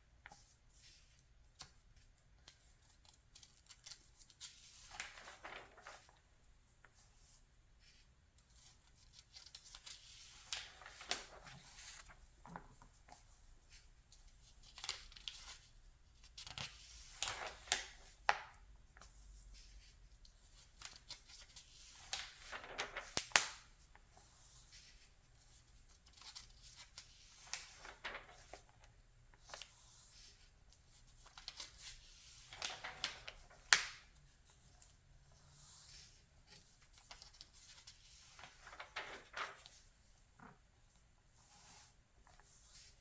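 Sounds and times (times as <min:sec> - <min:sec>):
magazine pages turning: 0:02.5 - 0:06.2, 0:07.9 - 0:13.8, 0:20.5 - 0:34.9, 0:35.6 - 0:40.6.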